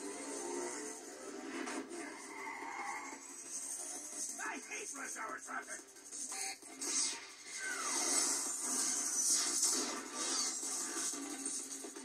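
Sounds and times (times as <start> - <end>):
cartoon background music: 0.0 - 12.0
noisy sound effects: 4.4 - 12.0.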